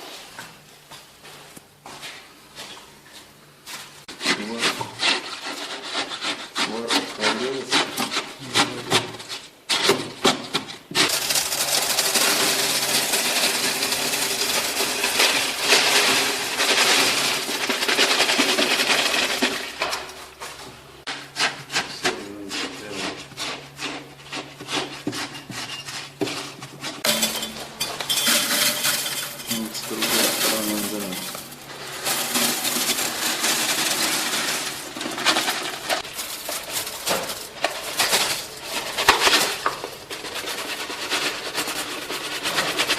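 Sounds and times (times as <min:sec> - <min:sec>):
hand tool rasping hard material: 0:04.2 - 0:19.6, 0:21.3 - 0:27.2.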